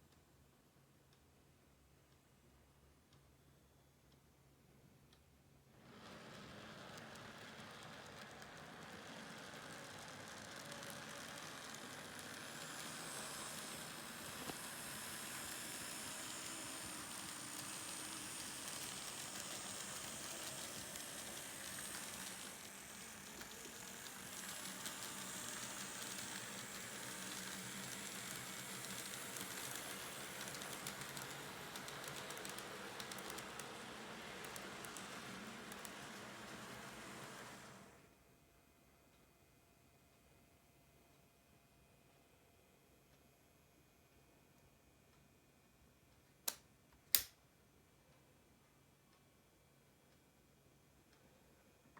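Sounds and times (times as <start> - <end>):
train running: 5.9 - 38.0.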